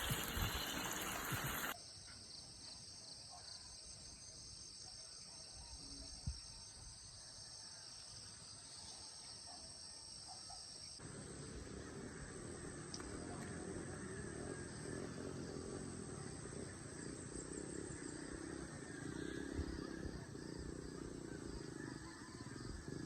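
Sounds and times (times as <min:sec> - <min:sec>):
insects chirring: 0:00.0 - 0:01.8, 0:11.0 - 0:23.0.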